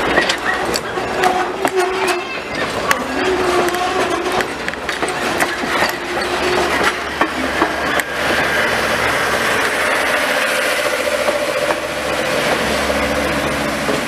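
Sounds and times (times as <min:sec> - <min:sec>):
clicks over rail joints: 0:00.0 - 0:08.5
train wheels rumbling on rails: 0:00.0 - 0:14.0.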